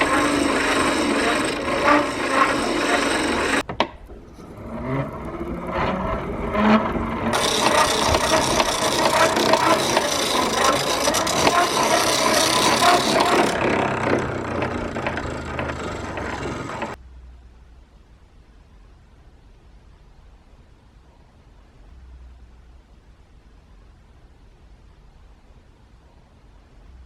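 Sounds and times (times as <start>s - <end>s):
grinding stone scraping metal: 0.0s - 3.6s, 4.3s - 17.0s.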